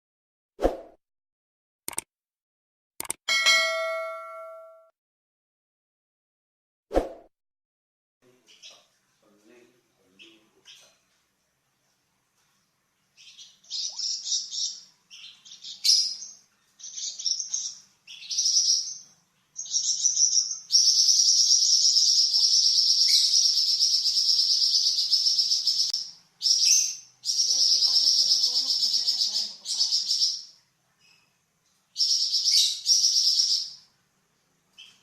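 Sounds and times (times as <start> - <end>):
songbird chattering trill: 19.6 - 30.5.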